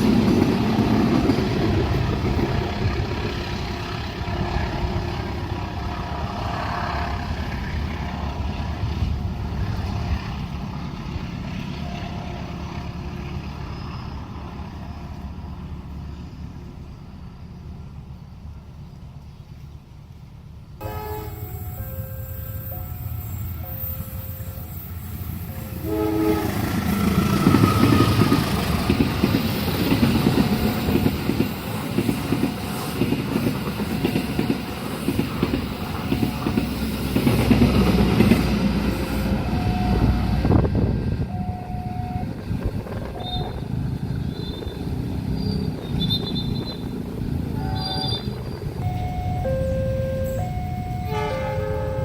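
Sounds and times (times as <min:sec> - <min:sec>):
train wheels clattering on rails: 0:00.0 - 0:12.1, 0:26.4 - 0:48.9
train horn blast: 0:03.4 - 0:07.2, 0:20.8 - 0:28.3, 0:47.5 - 0:48.4, 0:49.0 - 0:52.0
two-tone crossing chime: 0:20.8 - 0:25.0, 0:48.8 - 0:52.0.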